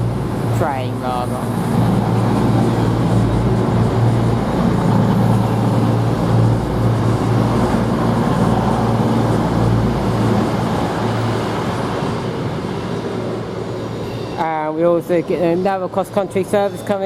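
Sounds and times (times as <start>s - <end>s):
train diesel engines rumbling: 0.0s - 17.0s.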